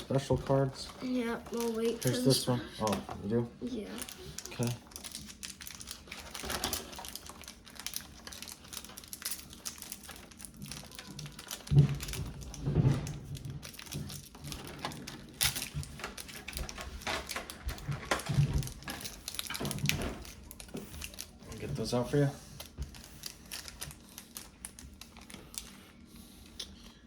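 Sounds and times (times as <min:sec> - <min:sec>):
packaging clicks and rustles: 0:00.0 - 0:27.0.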